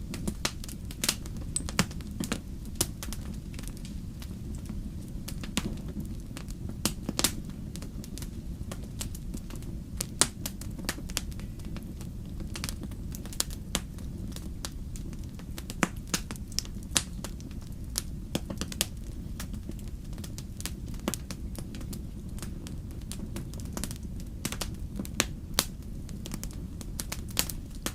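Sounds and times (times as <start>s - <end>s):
fire crackling and popping: 0.0s - 27.9s
low fire rumble: 0.0s - 27.9s.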